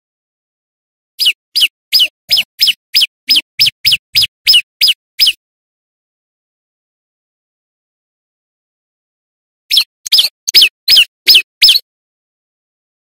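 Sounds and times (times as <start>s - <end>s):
bird calling sharp high notes: 1.2s - 5.4s, 9.7s - 11.8s.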